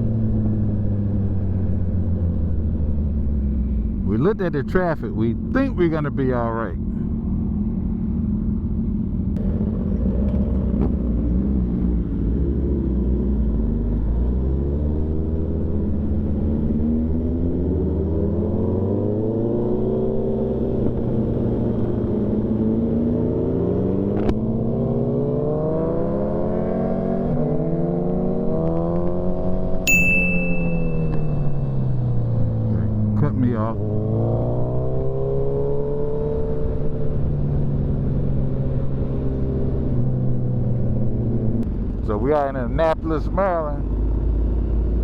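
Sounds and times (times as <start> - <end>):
motorcycle engine revving: 9.4 - 29.9, 30.6 - 41.6
short high-pitched beep: 29.9 - 31.7.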